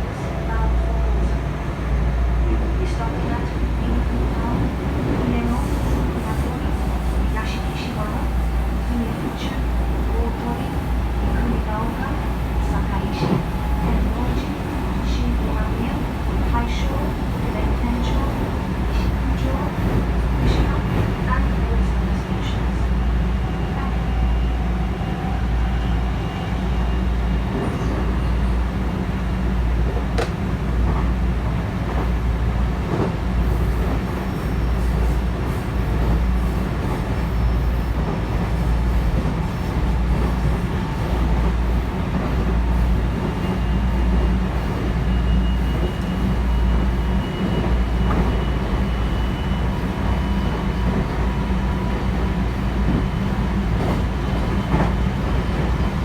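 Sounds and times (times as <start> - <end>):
train wheels rumbling on rails: 0.0 - 56.0
click: 30.2 - 30.4.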